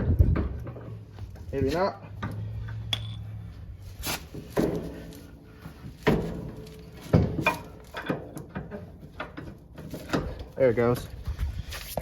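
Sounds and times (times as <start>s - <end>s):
sharp metal knocks and clanks: 4.3s - 11.0s.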